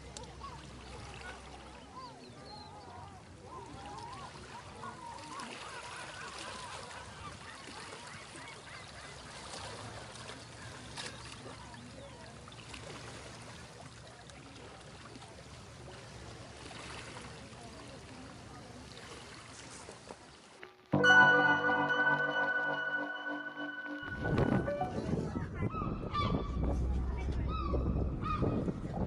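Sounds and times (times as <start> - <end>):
background murmur: 0.0 - 9.4.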